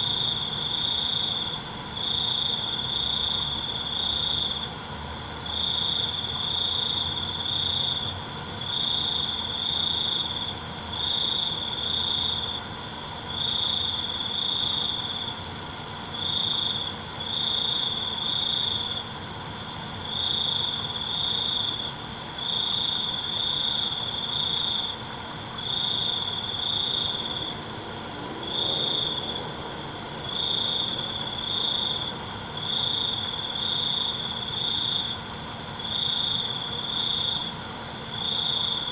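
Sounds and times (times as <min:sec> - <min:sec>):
faint insect chirps: 0:00.0 - 0:38.9
insect buzzing: 0:22.5 - 0:38.9
cricket loud high trill: 0:23.2 - 0:37.5.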